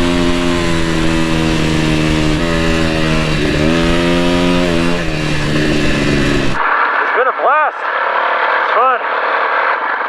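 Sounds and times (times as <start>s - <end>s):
dirt bike engine running: 0.0s - 7.2s.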